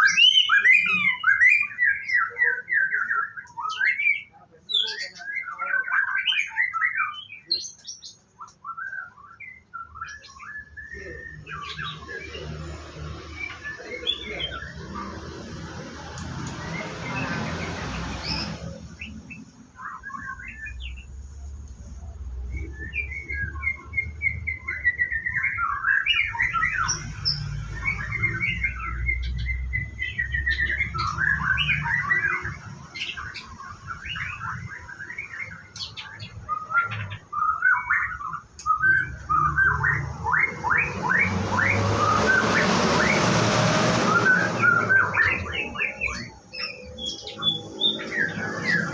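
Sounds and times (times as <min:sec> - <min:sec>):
bird chirping song: 0:00.0 - 0:48.9
rushing noise: 0:39.4 - 0:46.5.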